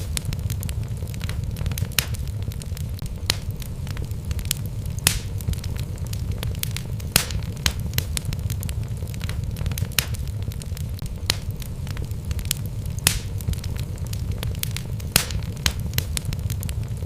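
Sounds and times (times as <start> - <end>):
logs crackling and popping: 0.0 - 17.0
low rumble of flame: 0.0 - 17.0.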